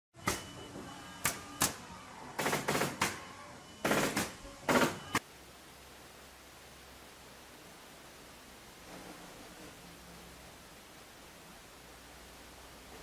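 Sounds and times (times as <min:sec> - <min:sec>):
faint steady hiss: 0:05.2 - 0:13.0.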